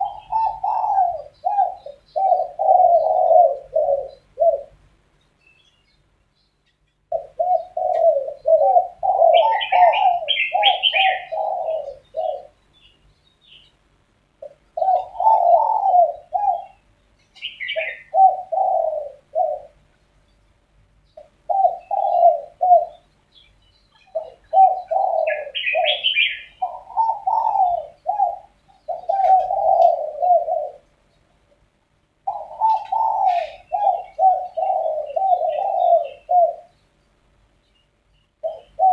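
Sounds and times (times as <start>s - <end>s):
doves cooing: 0.0s - 4.9s, 7.1s - 12.6s, 14.4s - 19.9s, 21.2s - 23.1s, 24.0s - 31.0s, 32.2s - 36.8s, 38.4s - 38.9s
small bird chirping: 5.2s - 13.8s, 14.4s - 18.8s, 19.5s - 30.4s.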